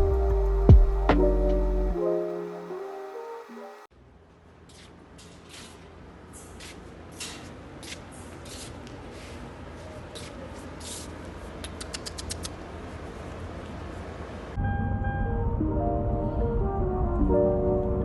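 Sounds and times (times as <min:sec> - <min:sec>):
low hum: 0:00.0 - 0:03.9, 0:14.5 - 0:18.0
sharp clicks: 0:11.6 - 0:12.6.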